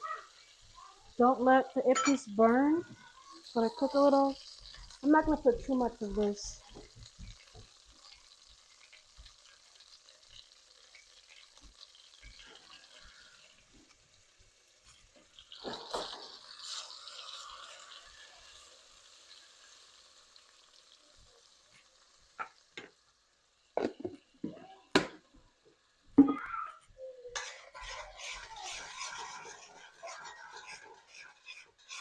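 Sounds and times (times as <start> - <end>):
food sizzling in pot: 0.0 - 32.0
stirring or scraping in pot: 14.9 - 18.7, 27.3 - 32.0.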